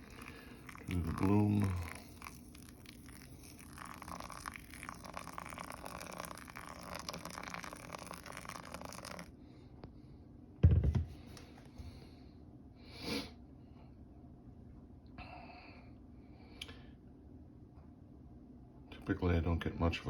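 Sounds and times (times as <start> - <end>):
water pouring from kettle: 0.0 - 9.3.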